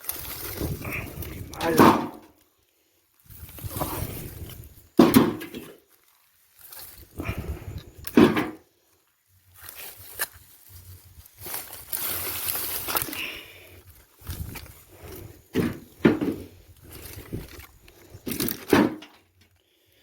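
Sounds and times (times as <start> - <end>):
rustling and shuffling: 0.0 - 19.7
logs knocking onto cart: 1.6 - 2.3, 5.0 - 5.7, 8.1 - 8.6, 15.5 - 16.5, 18.2 - 19.2.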